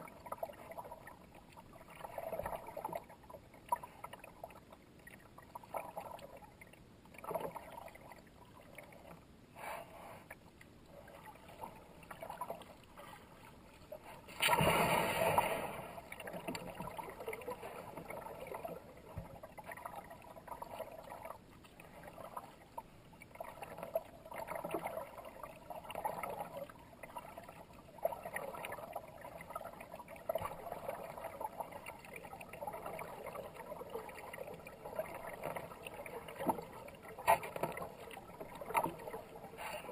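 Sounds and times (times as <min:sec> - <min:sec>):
water splashing and gurgling: 0:00.0 - 0:39.9
paddle strokes through water: 0:08.7 - 0:25.1, 0:29.3 - 0:39.9.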